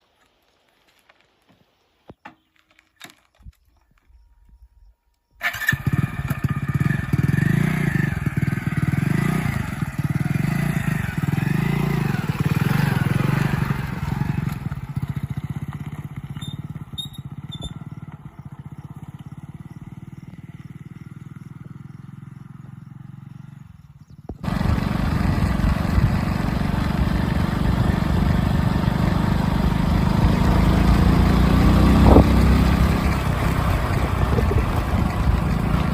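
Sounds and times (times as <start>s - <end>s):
heavy diesel engine rumbling: 24.4s - 35.9s.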